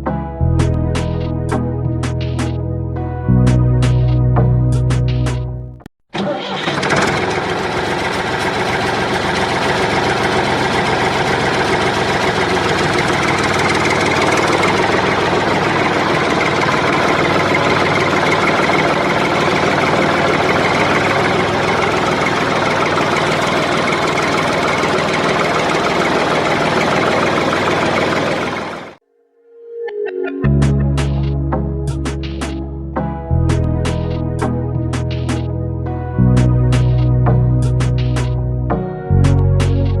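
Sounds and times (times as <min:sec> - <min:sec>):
tractor engine running: 0:04.8 - 0:29.0.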